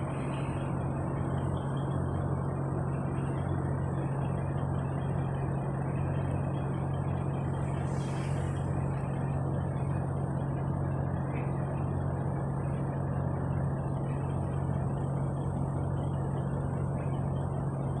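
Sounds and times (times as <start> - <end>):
road noise: 0.0 - 5.0, 7.4 - 9.1
truck engine drone: 0.0 - 18.0.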